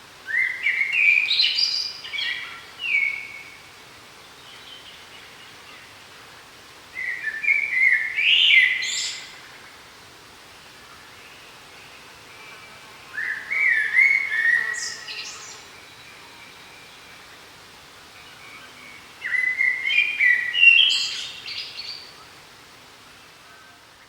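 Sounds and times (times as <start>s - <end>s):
faint forest background hiss: 0.0s - 24.0s
songbird warbling: 18.2s - 22.4s.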